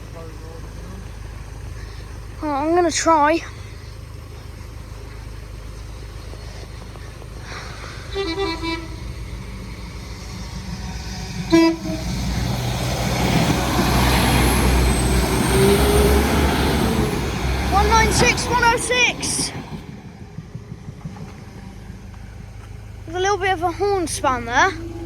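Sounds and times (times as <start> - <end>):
train rumble passing: 0.0 - 25.0
train horn tooting: 8.1 - 9.6, 11.4 - 12.5.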